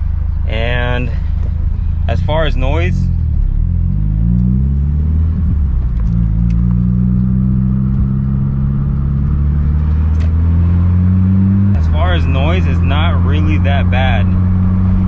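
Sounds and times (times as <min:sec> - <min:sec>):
car exhaust drone at idle: 0:00.0 - 0:15.0.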